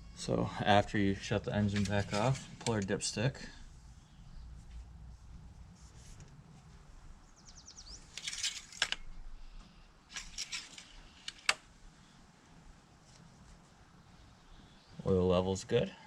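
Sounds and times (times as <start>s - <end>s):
dipstick scraping and rustling: 1.4s - 3.0s, 8.0s - 9.1s, 10.1s - 11.6s.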